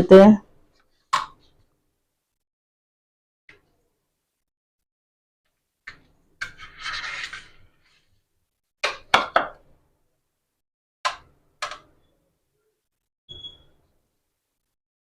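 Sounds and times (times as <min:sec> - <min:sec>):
knife scraping pizza crust: 0:06.4 - 0:07.7.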